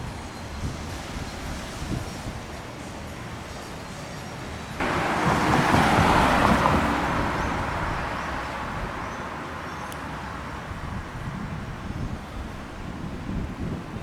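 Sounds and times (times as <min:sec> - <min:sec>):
vehicle passing by: 0:04.8 - 0:11.0.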